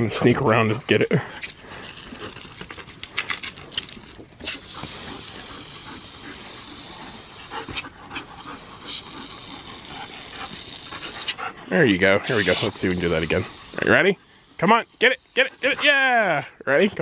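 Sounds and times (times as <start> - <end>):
dog panting: 0.0 - 17.0
hose spray hissing: 4.0 - 17.0.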